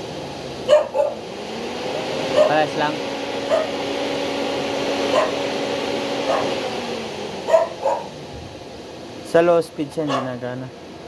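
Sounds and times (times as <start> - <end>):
radiator cooling fan humming: 0.0 - 11.0
dog barking: 0.7 - 1.2, 2.3 - 2.7, 3.5 - 3.8, 5.1 - 5.5, 6.3 - 6.6, 7.5 - 8.2, 10.0 - 10.4.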